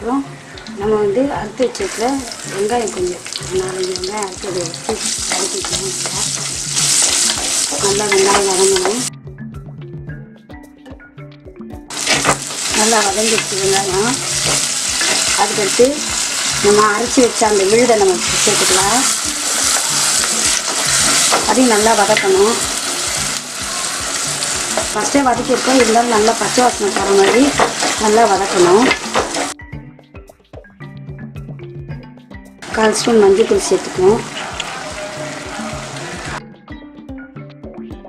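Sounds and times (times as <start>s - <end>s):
shallots sizzling in hot oil: 0.4s - 9.1s, 11.9s - 29.6s, 32.6s - 36.4s
wooden spatula scraping a pot: 11.9s - 15.4s, 27.0s - 29.6s.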